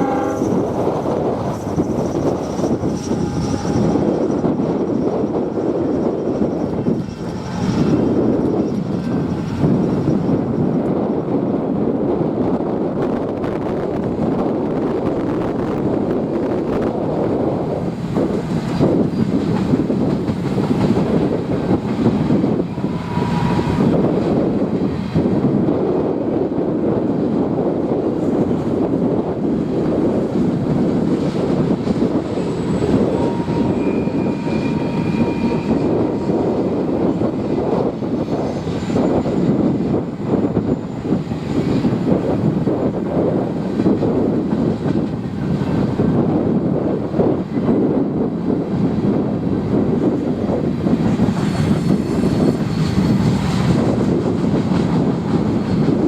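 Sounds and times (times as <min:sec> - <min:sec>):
train wheels rumbling on rails: 0:00.0 - 0:56.0
faint wheel squeals: 0:32.2 - 0:37.2, 0:51.0 - 0:53.7.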